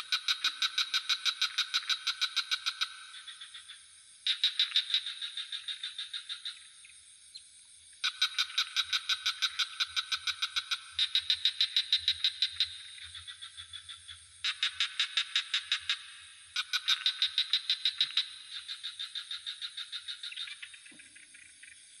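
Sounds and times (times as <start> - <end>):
crickets droning: 0.0 - 22.0
frog trilling: 8.0 - 21.8.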